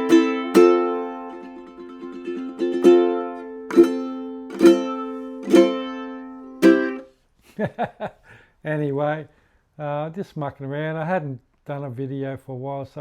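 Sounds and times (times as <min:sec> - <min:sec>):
ukulele notes and strummed chords: 0:00.0 - 0:07.1.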